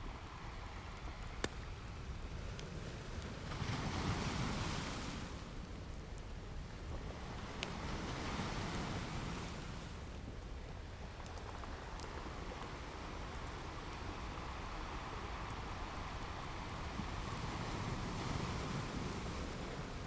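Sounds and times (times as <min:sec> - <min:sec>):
fire crackling: 0:00.0 - 0:20.0
ocean surf washing: 0:03.4 - 0:05.7, 0:07.0 - 0:10.0, 0:12.2 - 0:20.0.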